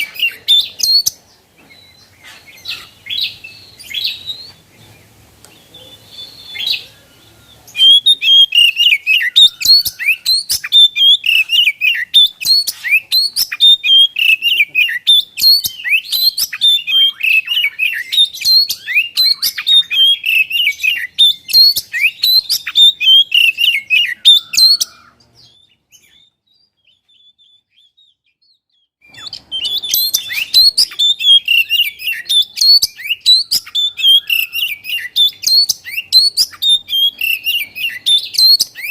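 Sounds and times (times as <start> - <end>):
bird singing chirps and whistles: 0.0 - 38.9.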